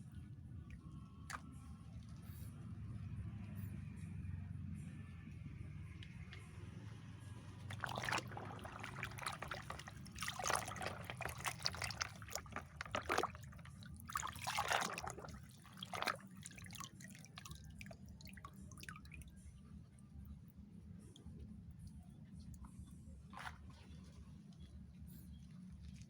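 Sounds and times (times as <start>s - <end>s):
water splashing and dripping: 7.5s - 19.3s.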